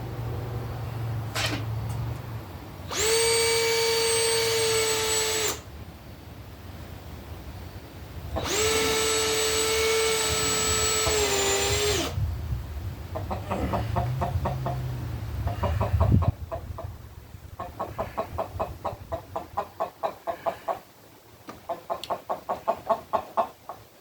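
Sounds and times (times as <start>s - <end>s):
electric drill whining: 2.9s - 5.7s, 8.4s - 12.2s.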